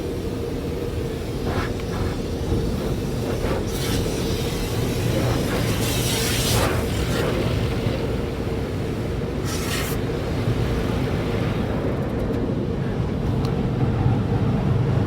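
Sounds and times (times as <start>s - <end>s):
brushes rubbing over car body: 1.3s - 7.3s, 9.4s - 10.0s
short hiss: 9.4s - 10.0s.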